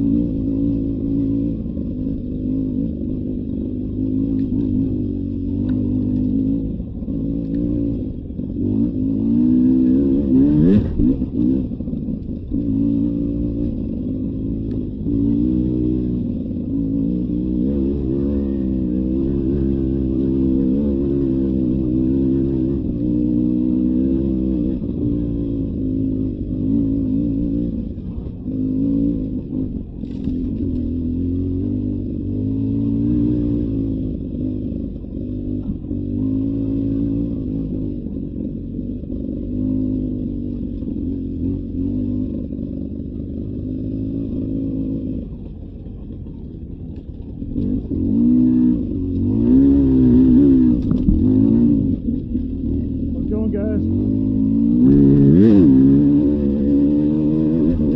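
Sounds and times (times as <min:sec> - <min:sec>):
dirt bike engine revving: 0:02.4 - 0:11.8, 0:47.5 - 0:57.9.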